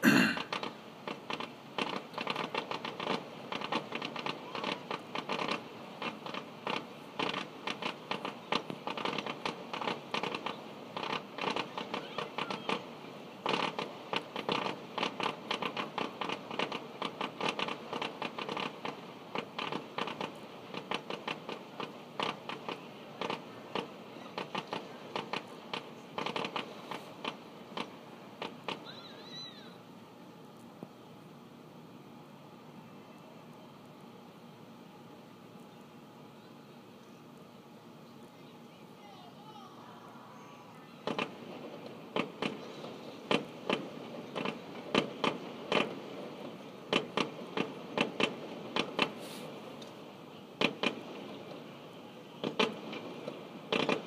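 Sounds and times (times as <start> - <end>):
fireworks pops and bangs: 0.4 - 29.1, 41.0 - 54.0.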